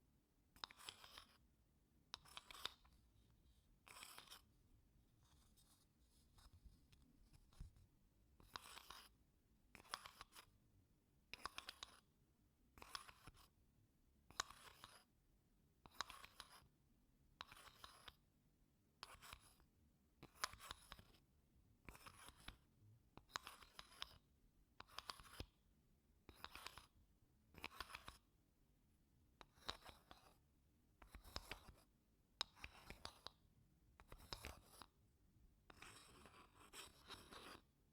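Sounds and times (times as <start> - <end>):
wooden spoon scraping wooden blocks: 3.8 - 4.5, 35.7 - 37.7.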